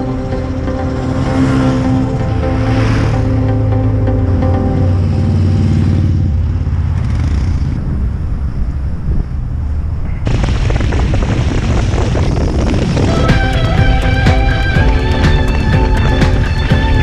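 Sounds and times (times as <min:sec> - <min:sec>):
music: 0:00.0 - 0:05.7, 0:13.0 - 0:17.0
motorcycle engines running: 0:04.8 - 0:08.8, 0:13.1 - 0:17.0.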